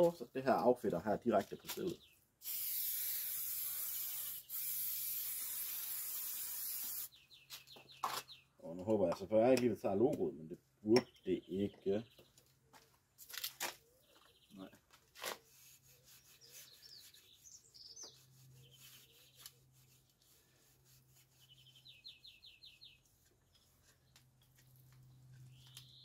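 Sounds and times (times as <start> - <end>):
small birds chirping: 0.2 - 26.0
cloth rubbing bicycle frame: 15.0 - 25.8.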